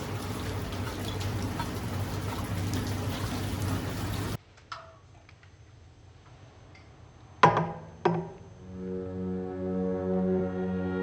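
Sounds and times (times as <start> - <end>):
rain hissing: 0.0 - 4.4
water drips: 0.0 - 4.4.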